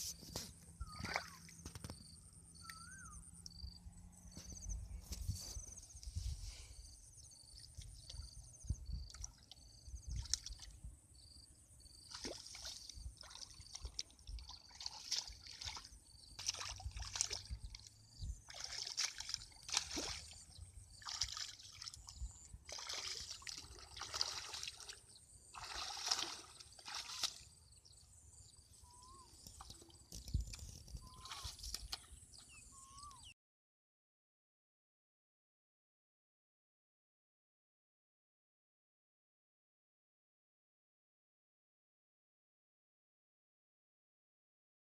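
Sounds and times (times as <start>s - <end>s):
water sloshing and splashing: 0.1s - 2.7s, 7.5s - 10.8s, 12.0s - 27.6s
water trickling: 12.1s - 27.4s.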